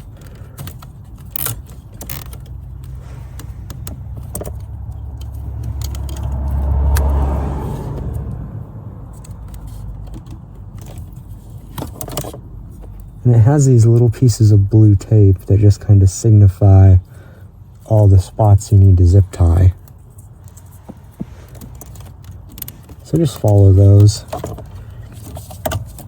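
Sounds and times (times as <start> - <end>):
zip ties and wiring rattling: 0.0 - 6.3
passing road vehicle rumble: 2.1 - 11.8.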